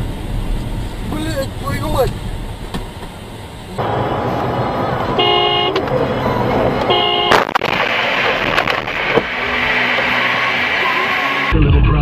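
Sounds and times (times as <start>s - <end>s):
road and engine noise: 0.0s - 12.0s
car horn honking: 3.8s - 7.6s.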